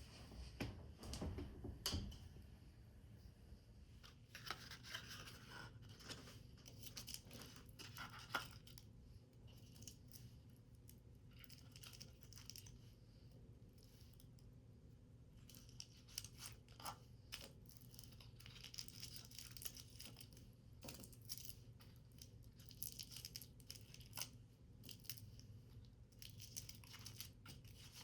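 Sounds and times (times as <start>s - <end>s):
paper rustling and crinkling: 4.2s - 8.8s.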